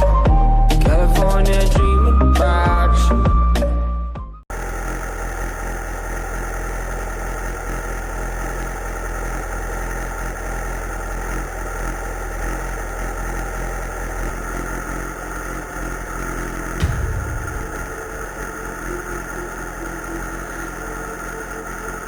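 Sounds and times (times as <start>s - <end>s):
motorcycle engine idling: 4.5s - 22.0s.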